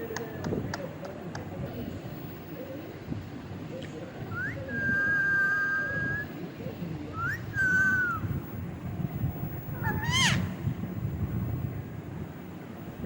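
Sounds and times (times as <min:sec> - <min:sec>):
parrot whistling: 0:07.2 - 0:08.2, 0:09.8 - 0:10.5.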